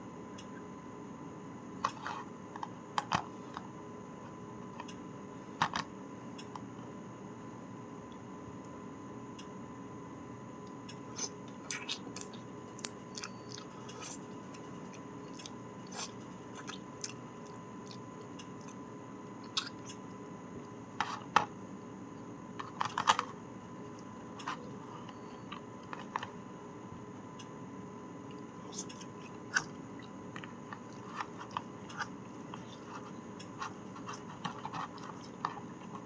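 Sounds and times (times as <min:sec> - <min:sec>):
steady low hum: 0:00.0 - 0:36.0
chewing: 0:11.1 - 0:18.8, 0:19.4 - 0:20.1, 0:28.3 - 0:36.0.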